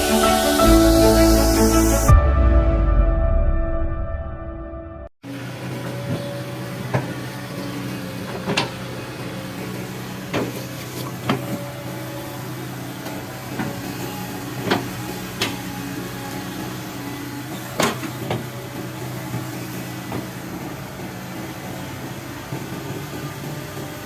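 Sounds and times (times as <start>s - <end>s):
excavator diesel engine running: 0.0s - 2.2s, 5.2s - 24.0s.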